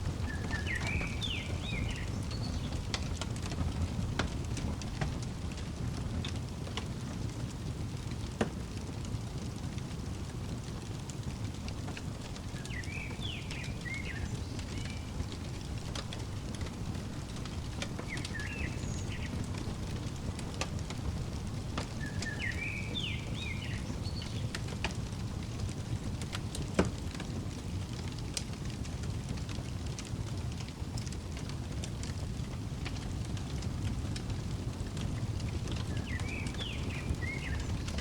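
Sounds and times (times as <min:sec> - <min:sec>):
small bird chirping: 0:00.0 - 0:03.0, 0:12.4 - 0:24.8, 0:35.6 - 0:38.0
fireplace crackling and popping: 0:00.0 - 0:38.0.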